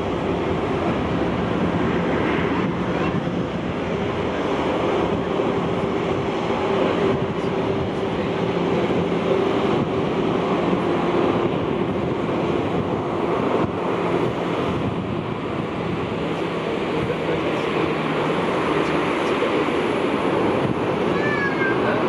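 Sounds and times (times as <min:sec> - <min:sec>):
jet engines rushing: 0:00.0 - 0:22.0.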